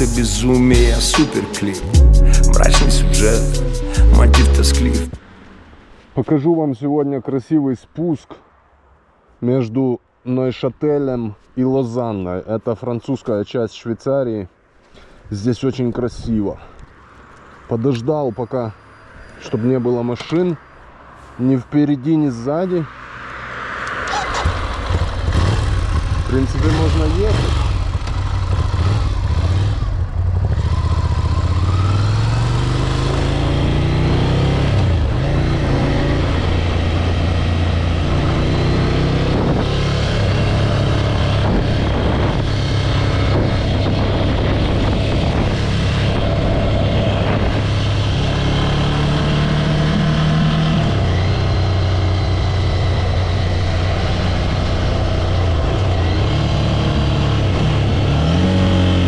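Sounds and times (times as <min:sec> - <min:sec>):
motorcycle engine accelerating: 0:24.4 - 0:43.6, 0:47.7 - 0:59.0.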